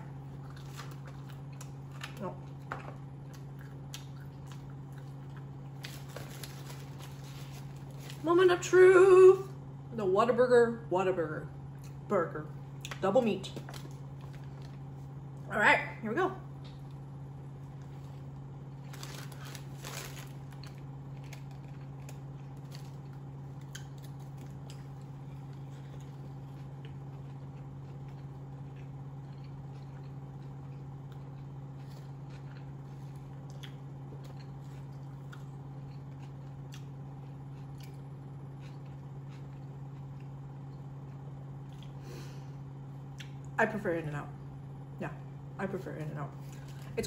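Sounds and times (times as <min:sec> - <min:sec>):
steady low hum: 0:00.0 - 0:47.0
close-up chewing: 0:00.1 - 0:08.2, 0:18.8 - 0:42.0.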